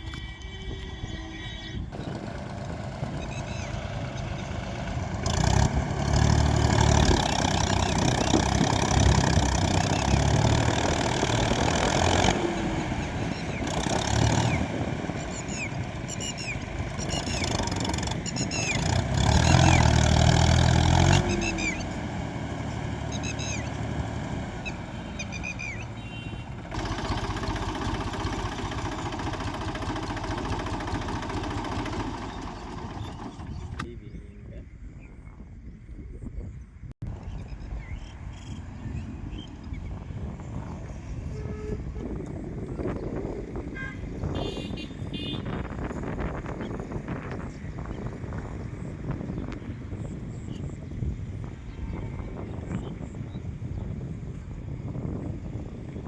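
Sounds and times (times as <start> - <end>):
tractor diesel engine revving: 1.8 - 33.9.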